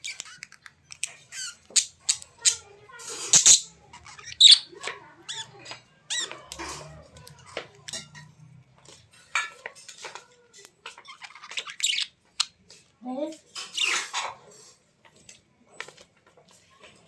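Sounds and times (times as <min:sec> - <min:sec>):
small bird chirping: 0:00.0 - 0:06.8, 0:10.9 - 0:12.6.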